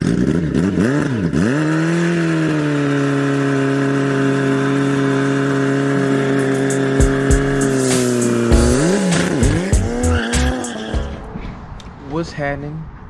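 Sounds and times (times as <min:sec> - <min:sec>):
engine revving: 0:00.0 - 0:11.3.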